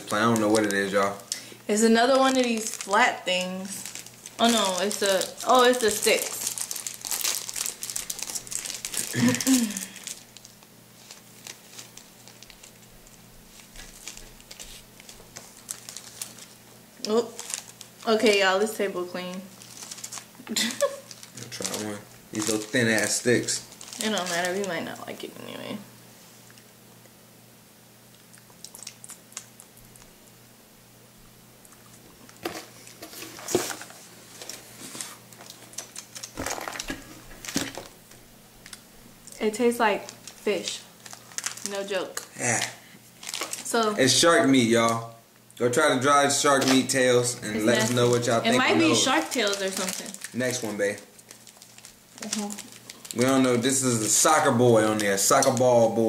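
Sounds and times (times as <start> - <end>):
plastic wrapper crinkling: 0.0 - 25.4, 28.1 - 30.2, 31.7 - 45.0, 46.3 - 55.9
person chewing crunchy snacks: 6.4 - 12.8, 28.1 - 30.1.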